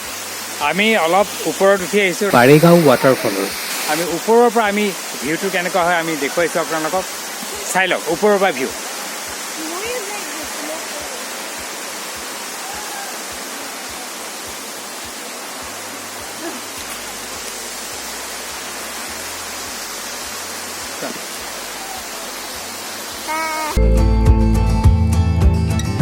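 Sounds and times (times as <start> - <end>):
waterfall rushing: 0.0 - 23.8
faint voice: 23.3 - 23.8.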